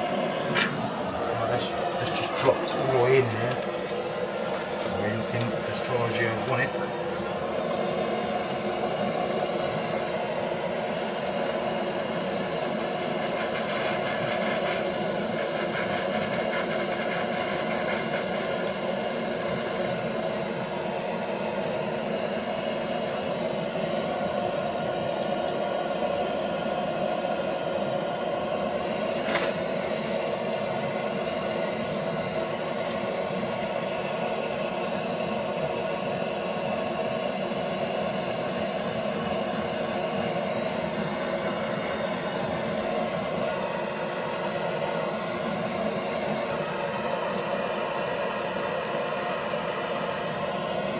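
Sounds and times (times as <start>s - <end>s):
blowtorch hissing: 0.0s - 50.9s.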